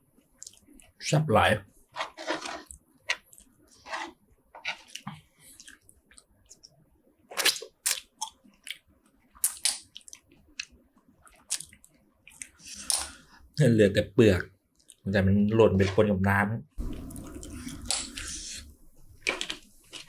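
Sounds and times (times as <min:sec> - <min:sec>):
chewing and crunching food: 0:00.4 - 0:01.0, 0:01.9 - 0:13.4, 0:14.7 - 0:15.1.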